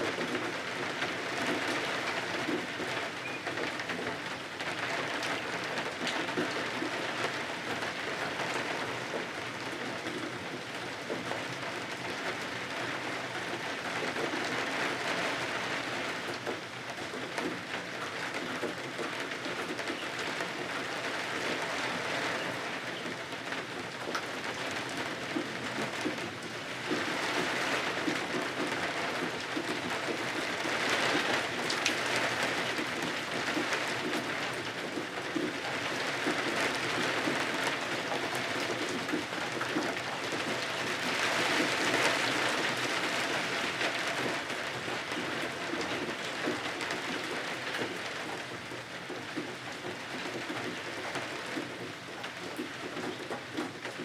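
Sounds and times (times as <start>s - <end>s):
rain on windows: 0.0s - 54.0s.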